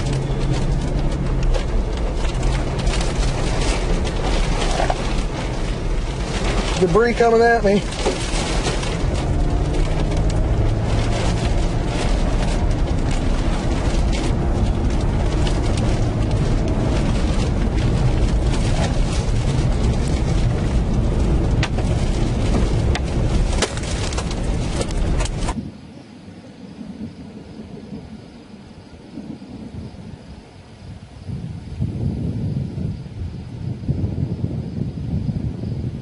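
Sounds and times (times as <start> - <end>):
flying debris cracks and knocks: 0.0 - 25.6
tornado wind buffeting microphone: 0.0 - 36.0.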